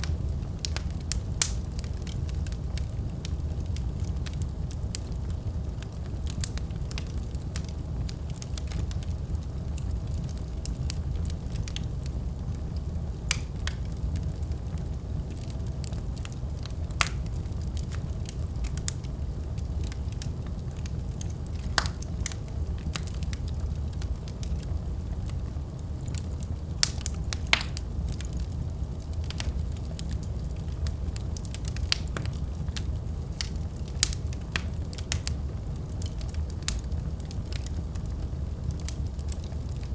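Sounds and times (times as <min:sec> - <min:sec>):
sharp pops of burning wood: 0:00.0 - 0:04.4, 0:13.3 - 0:14.0, 0:15.3 - 0:24.4, 0:26.8 - 0:39.9
wood fire burning: 0:00.0 - 0:39.9.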